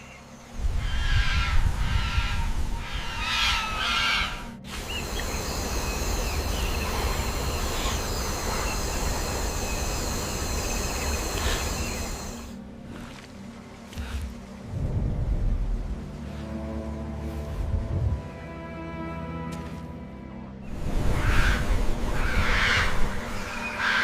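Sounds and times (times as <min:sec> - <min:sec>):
repeated bird calls: 0:00.0 - 0:12.5, 0:20.7 - 0:24.0
jungle drone of high tones: 0:00.4 - 0:12.6
low rumble: 0:14.0 - 0:18.4.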